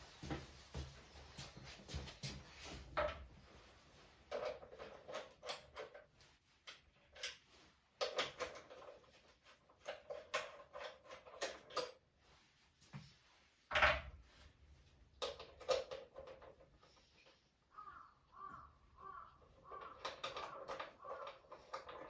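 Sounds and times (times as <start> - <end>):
small objects knocking and clicking: 19.6 - 22.0.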